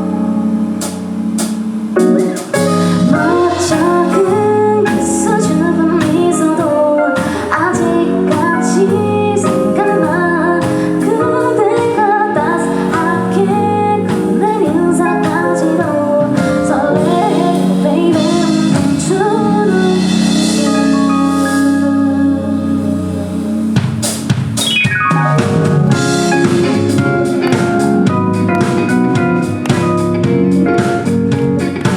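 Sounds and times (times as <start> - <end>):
live band playing: 0.0 - 31.9
woman singing pop song: 3.0 - 23.8.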